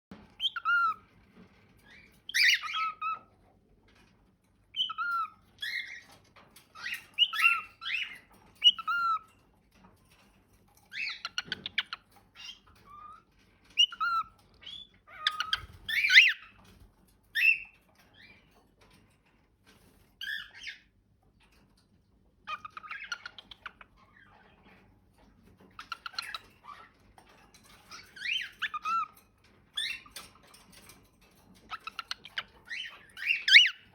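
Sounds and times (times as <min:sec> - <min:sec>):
cockatiel whistling and squawking: 0:00.4 - 0:01.0, 0:01.9 - 0:03.3, 0:04.8 - 0:06.1, 0:06.8 - 0:09.2, 0:13.8 - 0:16.5, 0:17.4 - 0:17.7, 0:31.7 - 0:33.9.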